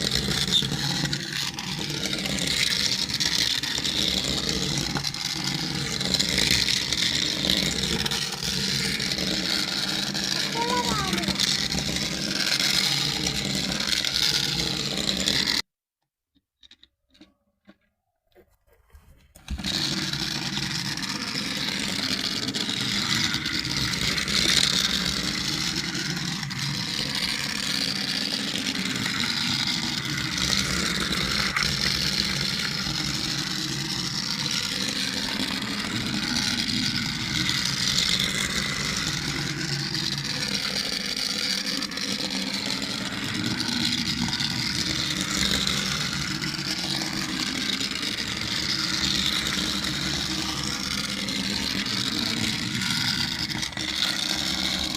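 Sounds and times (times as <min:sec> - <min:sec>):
toy vehicle mechanical whir: 0:00.0 - 0:15.7, 0:16.6 - 0:54.9.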